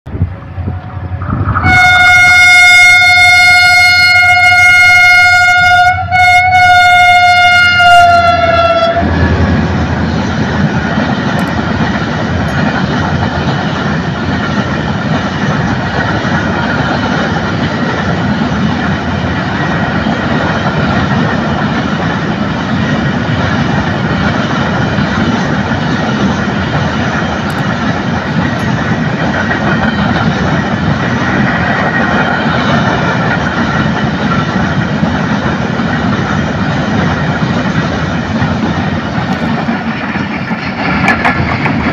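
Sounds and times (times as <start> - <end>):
train wagons rumbling past: 0.1 - 41.9
locomotive horn blast: 0.6 - 10.1.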